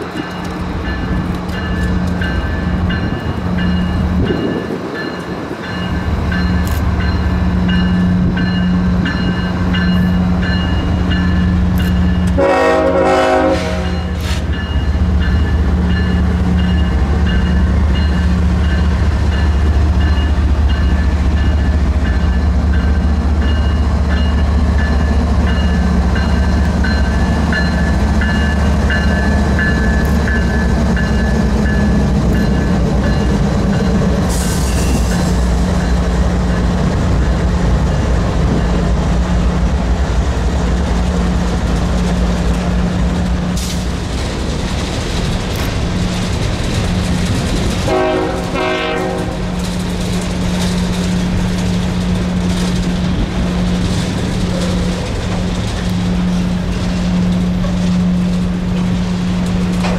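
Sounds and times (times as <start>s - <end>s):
train wheels rumbling on rail: 0.0s - 59.9s
train horn blast: 12.3s - 14.2s, 47.8s - 49.6s.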